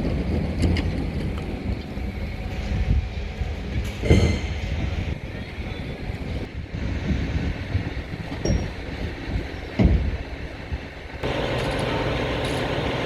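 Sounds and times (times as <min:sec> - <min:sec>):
truck engine rumble: 0:00.0 - 0:13.0.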